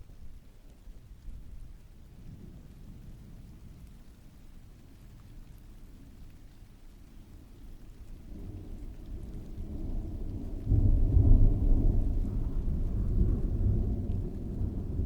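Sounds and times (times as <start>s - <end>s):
rain falling: 0.1s - 15.0s
rolling thunder: 8.2s - 15.0s.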